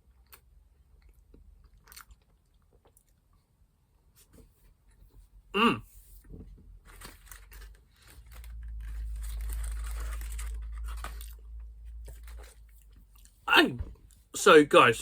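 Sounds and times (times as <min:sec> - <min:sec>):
short falling vocal sound: 0:05.6 - 0:05.8, 0:13.5 - 0:13.9
rustling and crinkling: 0:06.2 - 0:14.2.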